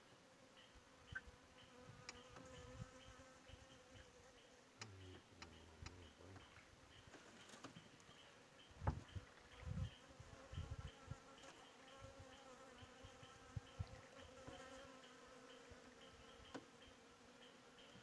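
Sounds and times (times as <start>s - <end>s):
insects buzzing: 0.0s - 18.0s
low thumps: 8.8s - 9.2s.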